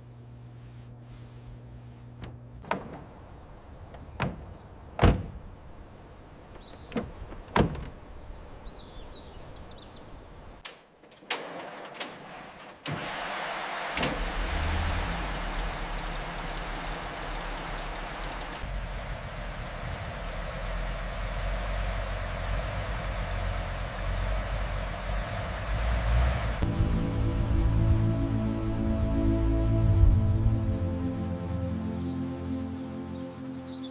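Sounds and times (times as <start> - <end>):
steady rumble with hiss: 0.0 - 10.6, 13.8 - 31.7
car doors clunking: 2.2 - 9.6, 10.6 - 18.6.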